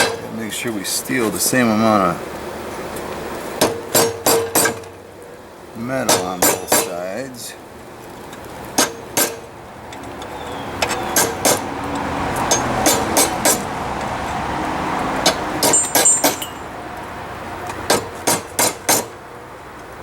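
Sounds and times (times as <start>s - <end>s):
hammer striking hot metal on anvil: 3.6s - 4.8s, 6.0s - 6.9s, 8.8s - 9.5s, 11.1s - 11.6s, 12.5s - 13.6s, 15.2s - 16.6s, 17.9s - 19.1s
steady rushing noise: 9.2s - 18.7s.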